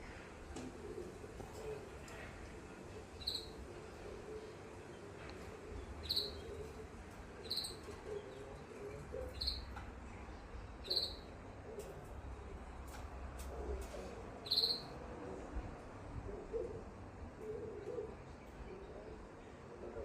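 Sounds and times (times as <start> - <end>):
canary chirps: 3.2 - 3.6, 6.0 - 6.8, 7.4 - 8.4, 9.1 - 9.8, 10.8 - 11.4, 14.4 - 15.0.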